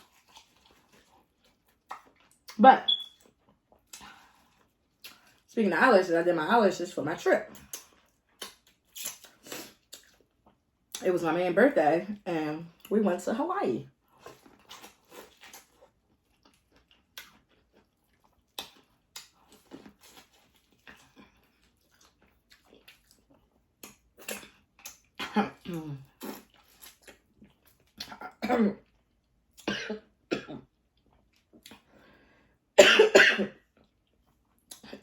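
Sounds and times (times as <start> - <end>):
woman clearing throat: 28.2 - 28.8, 29.7 - 30.7, 32.8 - 33.5
woman coughing: 28.4 - 28.8, 29.7 - 30.6, 32.8 - 33.6.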